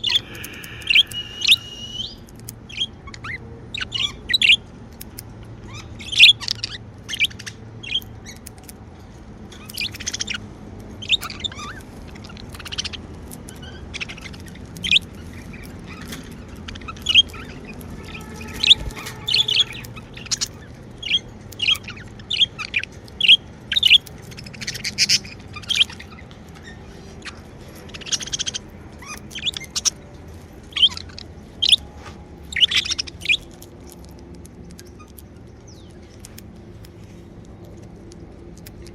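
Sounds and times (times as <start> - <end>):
budgerigars chirping: 0.0 - 4.7, 5.6 - 8.5, 9.5 - 31.9, 32.5 - 33.6.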